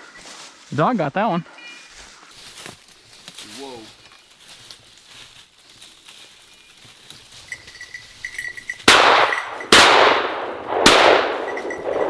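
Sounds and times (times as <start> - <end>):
loud echoing shotgun shots: 8.9 - 12.0.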